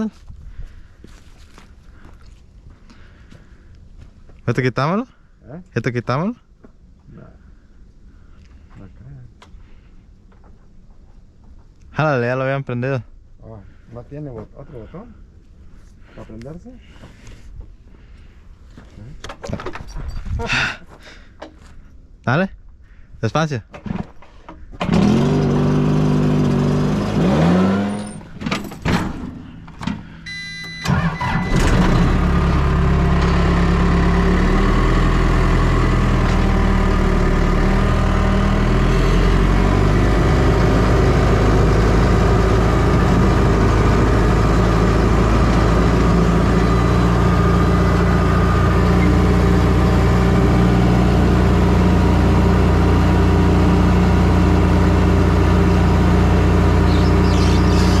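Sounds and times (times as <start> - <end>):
leaf blower engine starting: 24.8 - 28.3, 30.3 - 38.8, 51.3 - 58.0.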